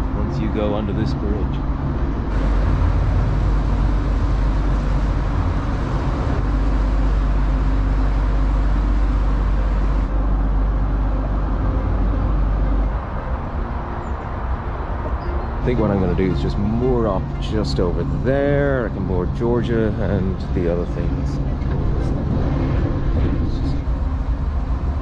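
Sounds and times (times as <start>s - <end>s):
boat engine rumbling: 0.0s - 25.0s
traffic hiss: 2.3s - 10.1s.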